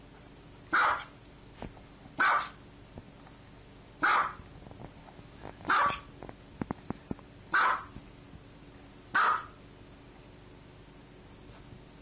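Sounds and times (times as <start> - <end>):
small dog barking: 0.7 - 1.2, 2.2 - 2.6, 4.0 - 4.4, 5.7 - 6.1, 7.5 - 8.0, 9.1 - 9.6.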